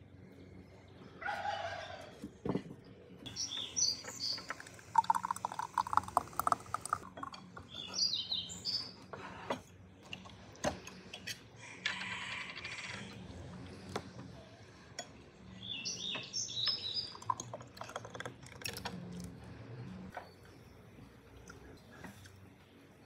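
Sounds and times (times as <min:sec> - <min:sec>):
small birds chirping: 0:03.2 - 0:06.0, 0:07.5 - 0:09.1, 0:15.4 - 0:17.5
drink pouring into a glass: 0:04.2 - 0:07.6, 0:17.1 - 0:19.2.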